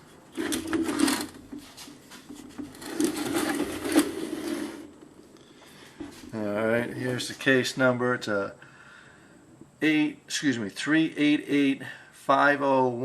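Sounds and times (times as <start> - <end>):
metal case scraping and knocking: 0.4 - 4.9.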